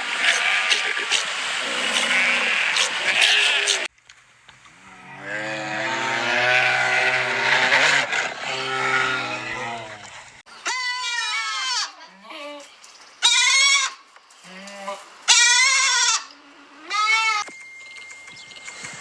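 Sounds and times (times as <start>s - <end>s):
high falling bleat: 0.1s - 3.9s, 4.8s - 10.1s
long low animal call: 4.8s - 10.3s.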